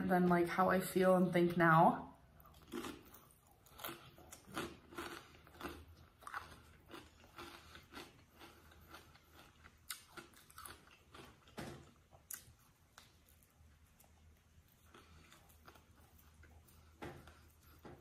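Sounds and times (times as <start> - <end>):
chewing sandwich: 2.4 - 18.0.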